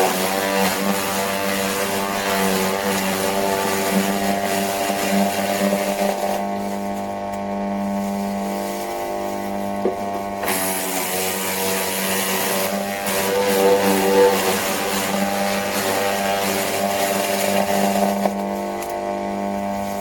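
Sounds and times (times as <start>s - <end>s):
wood chipper motor hum: 0.0s - 20.0s.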